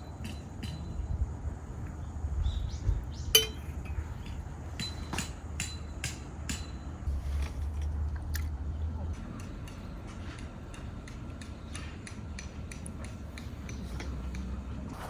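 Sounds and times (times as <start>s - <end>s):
sharp ringing clink: 3.4s - 3.7s.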